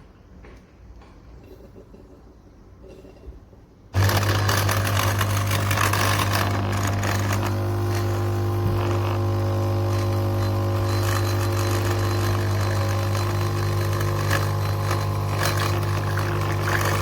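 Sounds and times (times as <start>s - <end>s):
espresso machine pump buzzing: 4.0s - 17.0s.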